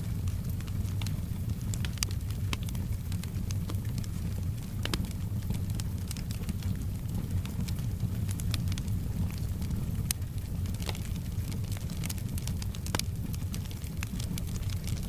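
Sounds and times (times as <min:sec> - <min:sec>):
low fire rumble: 0:00.0 - 0:15.0
soft hiss of rain: 0:00.0 - 0:15.0
wood fire crackling and popping: 0:00.0 - 0:15.0.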